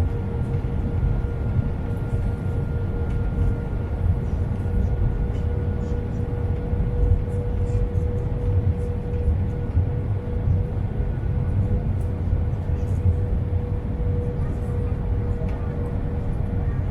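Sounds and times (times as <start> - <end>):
airliner cabin rumble: 0.0 - 16.9
constant hum: 0.0 - 16.9.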